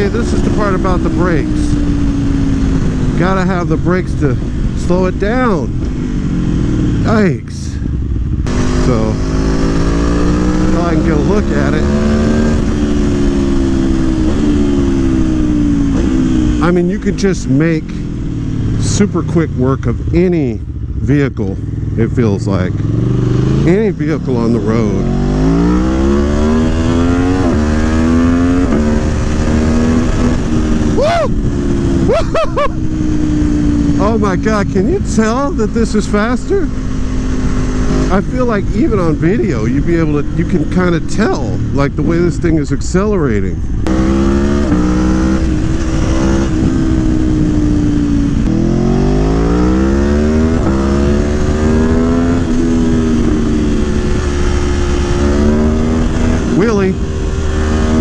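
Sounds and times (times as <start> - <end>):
motorcycle engine accelerating: 0.0 - 58.0
wind rushing on microphone: 24.8 - 58.0
rider shouting woo: 30.8 - 31.4, 32.0 - 32.9.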